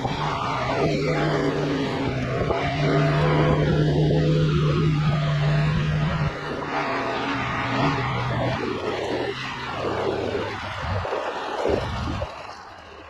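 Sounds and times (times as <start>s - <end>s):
utility vehicle engine running: 0.0s - 13.0s
wind rushing: 8.9s - 12.5s.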